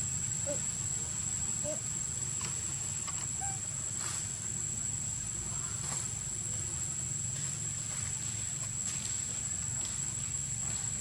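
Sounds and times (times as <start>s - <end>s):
faint squeaky calls: 0.4s - 0.8s, 1.6s - 1.9s, 2.9s - 3.8s.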